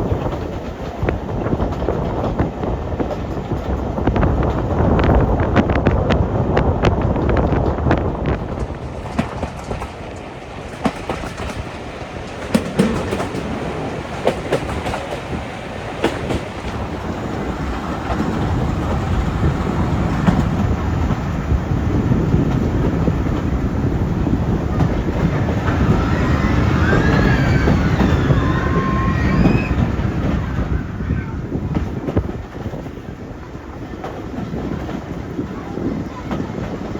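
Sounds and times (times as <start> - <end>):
train low rumble: 0.0 - 36.9
train wheels clicking over rail joints: 0.0 - 36.9
wheel squeals: 8.2 - 21.0, 22.0 - 31.5.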